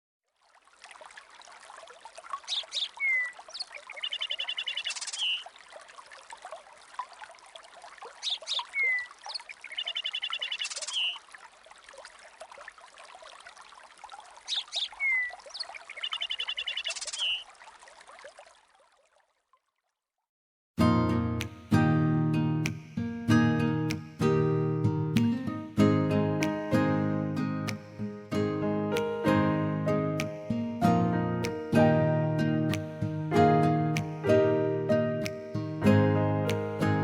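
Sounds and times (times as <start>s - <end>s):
running water: 0.3s - 20.0s
birdsong chirps and trills: 2.4s - 5.6s, 8.1s - 11.2s, 14.4s - 17.5s.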